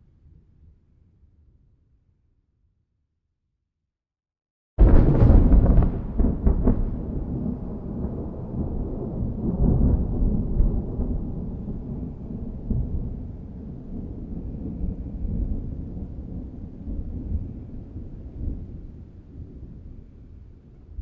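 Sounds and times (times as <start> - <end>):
thunder cracks: 4.8 - 17.4
thunder rumbling: 4.8 - 21.0.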